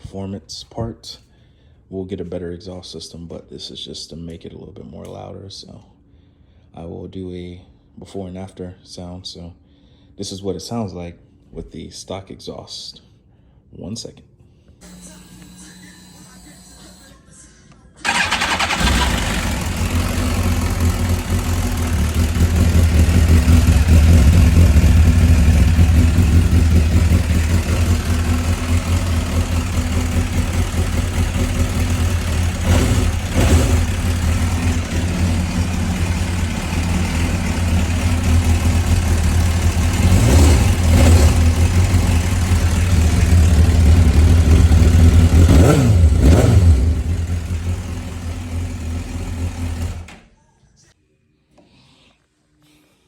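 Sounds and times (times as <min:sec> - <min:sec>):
motorcycle engine starting and idling: 0:18.0 - 0:50.3
motorcycle throttle blips: 0:18.1 - 0:50.1.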